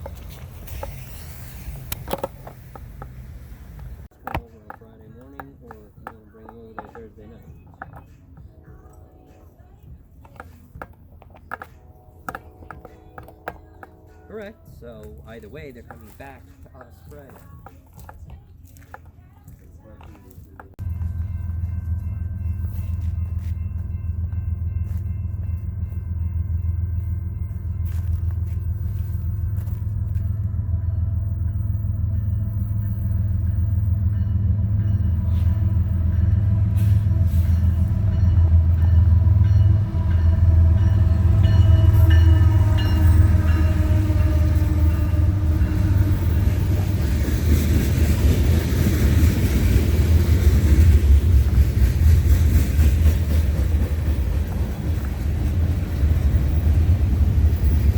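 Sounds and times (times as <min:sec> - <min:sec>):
rush of train wheels and air: 0:00.0 - 0:04.1, 0:45.6 - 0:57.9
train rumble: 0:00.0 - 0:57.9
train horn: 0:35.2 - 0:47.2.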